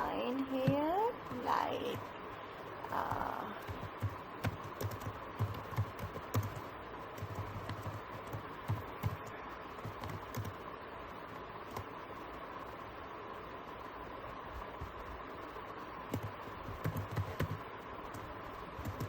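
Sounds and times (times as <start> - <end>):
computer keyboard typing: 3.0 - 10.6, 11.7 - 11.9, 16.1 - 19.0.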